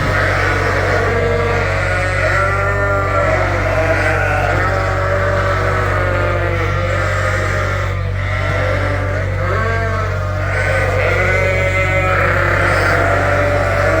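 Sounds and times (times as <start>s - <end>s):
lambs bleating: 0.0s - 14.0s.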